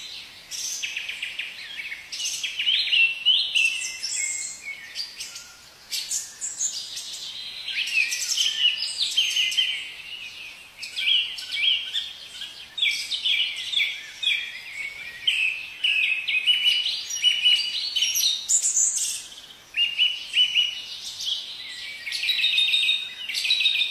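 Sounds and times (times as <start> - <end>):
songbirds chirping: 0.0 - 23.9.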